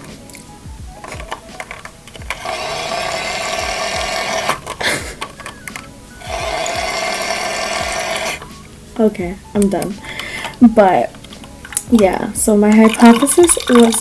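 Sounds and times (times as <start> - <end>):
small electric motor whining: 2.2 - 8.6.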